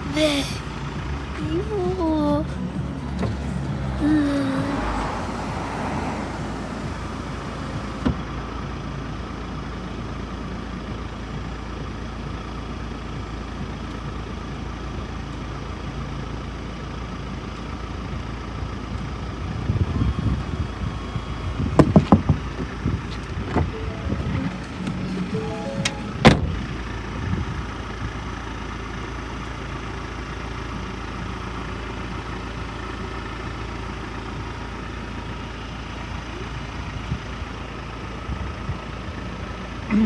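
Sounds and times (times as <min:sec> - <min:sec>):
vehicle engine rumbling: 0:00.0 - 0:40.0.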